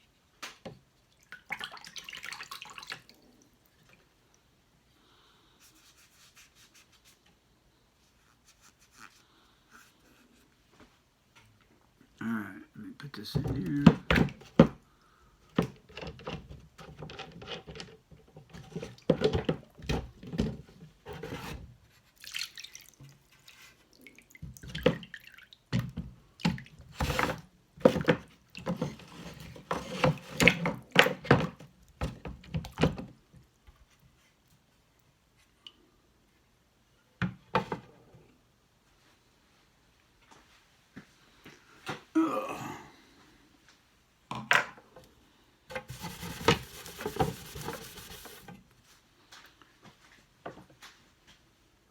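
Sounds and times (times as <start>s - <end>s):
water dripping and splashing: 1.1s - 4.4s, 22.2s - 26.8s
knife scraping on whetstone: 45.9s - 48.5s.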